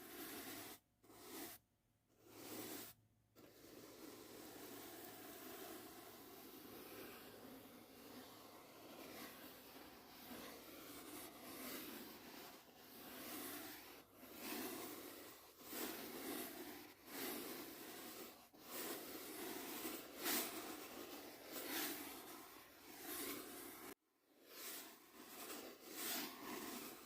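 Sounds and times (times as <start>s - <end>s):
brush strokes swishing: 0.0s - 1.6s, 2.2s - 27.0s.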